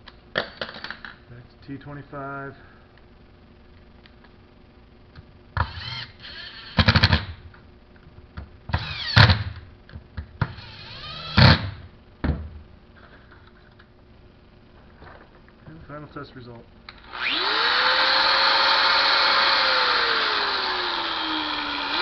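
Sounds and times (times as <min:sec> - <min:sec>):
powered screwdriver whirring: 0:17.0 - 0:22.0.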